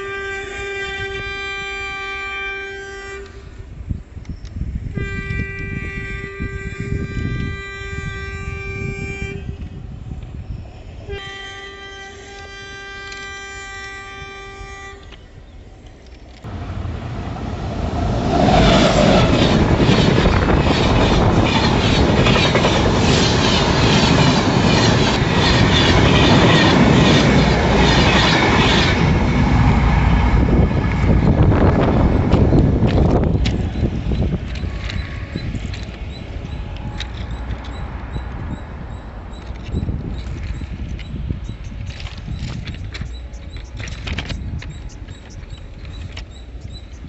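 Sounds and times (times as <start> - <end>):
train horn blasts: 0.0 - 3.8, 4.9 - 10.0, 11.1 - 15.6, 16.5 - 37.7
train wheels clattering over rails: 16.5 - 38.5.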